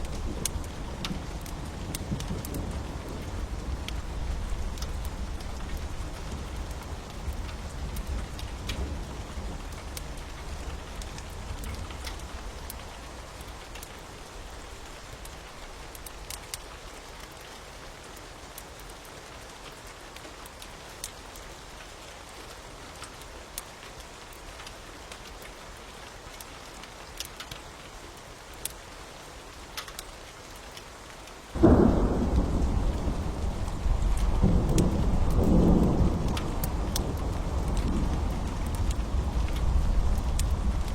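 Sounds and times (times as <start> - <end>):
thunder rumbling: 0.0 - 13.3, 31.6 - 40.9
wood fire crackling: 0.0 - 17.5, 29.7 - 40.9
steady rain: 0.0 - 40.9.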